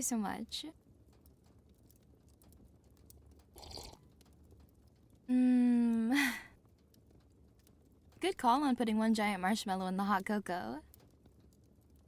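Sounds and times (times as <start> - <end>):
faint fireplace crackle: 0.0 - 12.0
woman sipping hot drink: 3.5 - 4.1
woman humming: 5.3 - 6.4.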